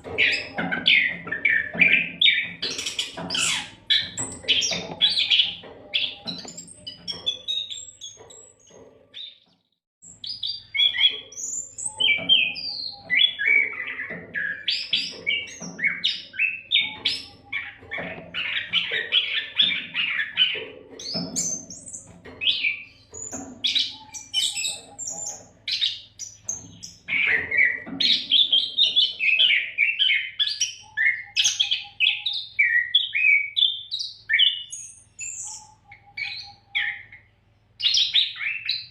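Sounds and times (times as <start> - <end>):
bird singing whistles and trills: 10.1 - 38.9.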